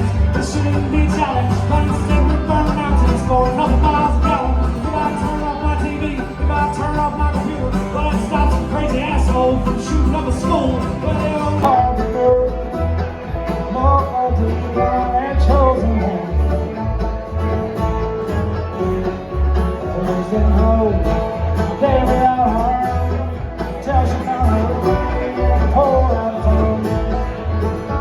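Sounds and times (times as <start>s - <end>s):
steady bass beat: 0.0s - 14.0s
bluegrass music with banjo and guitar: 0.0s - 28.0s.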